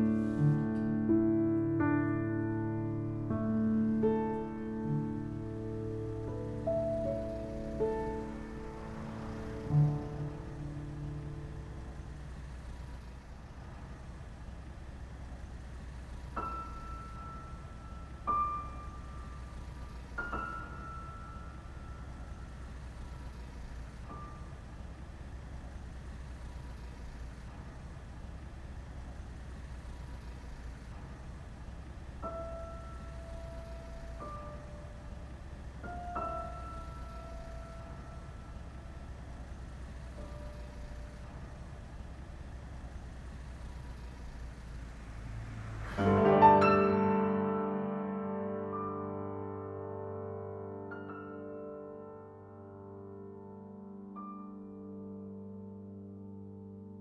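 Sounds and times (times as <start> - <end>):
slow piano music: 0.0 - 12.8, 16.0 - 24.8, 32.2 - 42.0, 45.3 - 57.0.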